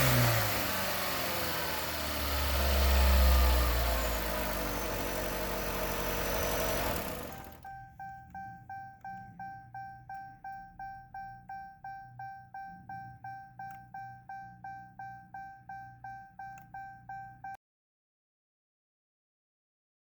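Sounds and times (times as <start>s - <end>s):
electronic warning chime dinging: 4.0s - 17.6s.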